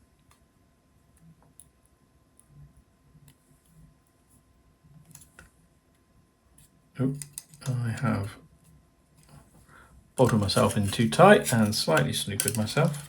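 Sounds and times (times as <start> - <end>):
small hardware parts clicking: 7.2 - 7.8, 10.2 - 13.0.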